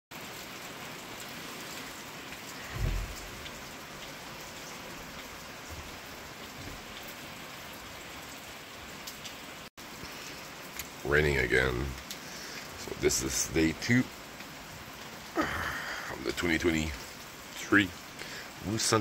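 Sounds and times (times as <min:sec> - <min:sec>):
steady rain: 0:00.1 - 0:19.0
dull low thump: 0:02.6 - 0:03.6.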